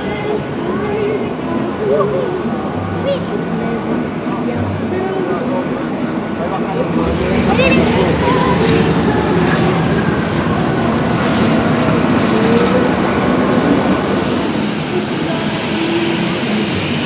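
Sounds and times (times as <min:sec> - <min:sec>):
faint shifting whine: 0:05.8 - 0:17.0
jet engines rumbling: 0:05.9 - 0:17.0.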